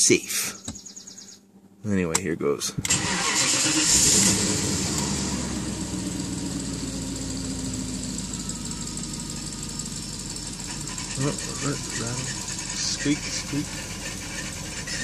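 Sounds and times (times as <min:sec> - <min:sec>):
car engine idling: 0:02.9 - 0:15.0.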